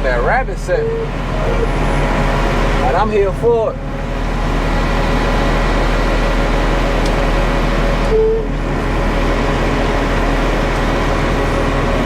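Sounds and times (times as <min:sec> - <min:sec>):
concrete mixer truck engine drone: 0:00.0 - 0:12.0
brief single tone: 0:08.1 - 0:08.5.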